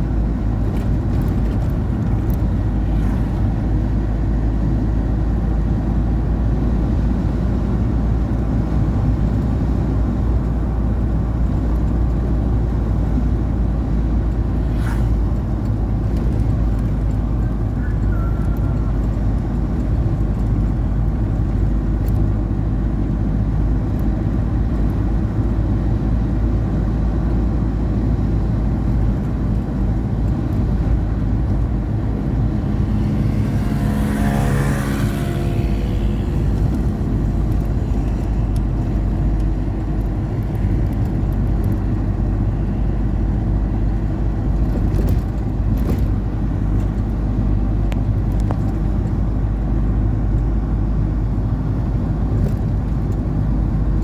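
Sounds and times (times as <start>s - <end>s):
passing engine: 0.0s - 54.0s
steady low rumble: 7.4s - 54.0s.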